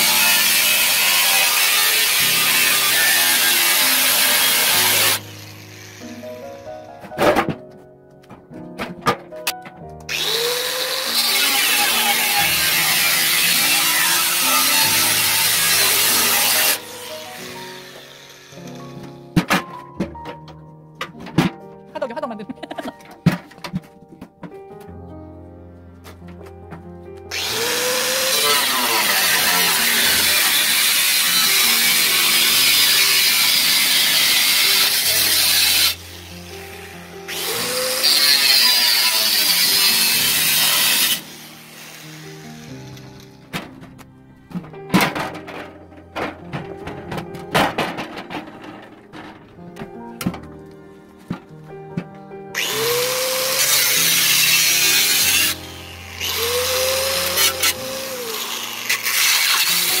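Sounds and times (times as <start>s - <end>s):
power tool cutting metal: 0.0s - 6.9s, 10.1s - 19.1s, 27.3s - 43.7s, 52.6s - 60.0s
background music: 0.0s - 60.0s.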